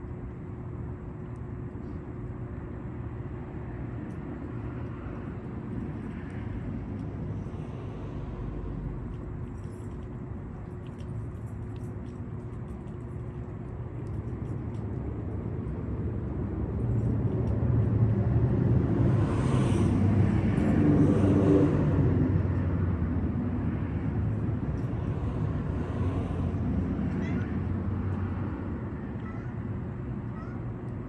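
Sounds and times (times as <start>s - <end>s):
car passing by: 17.9s - 23.2s.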